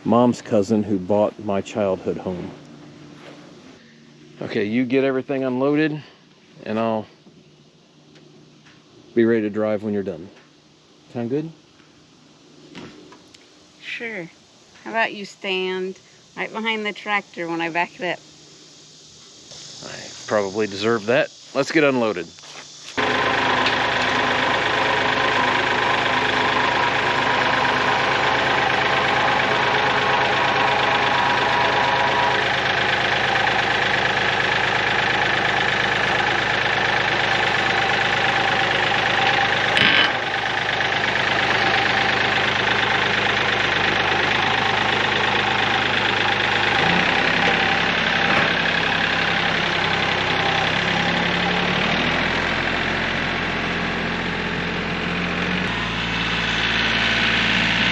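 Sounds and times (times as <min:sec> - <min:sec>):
diesel tractor engine idling: 0:00.0 - 0:08.6, 0:22.9 - 0:57.9.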